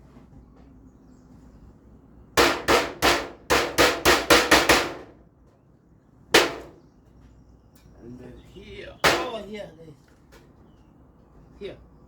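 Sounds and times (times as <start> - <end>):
hammer on metal roofing sheet: 2.4 - 5.2, 6.4 - 6.8, 9.0 - 9.5.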